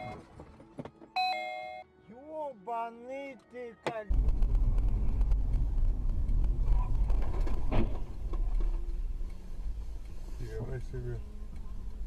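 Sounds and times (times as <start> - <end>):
car road and engine rumble: 4.1 - 12.0.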